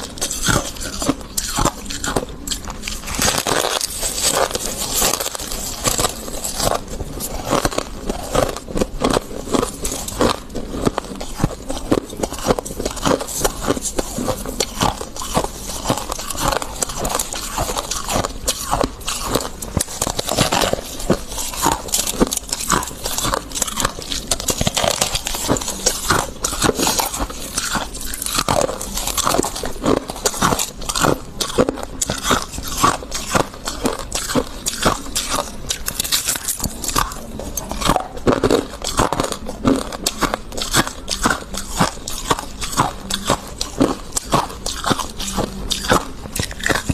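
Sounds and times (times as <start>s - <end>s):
frost being bitten and chewed: 0.0s - 46.9s.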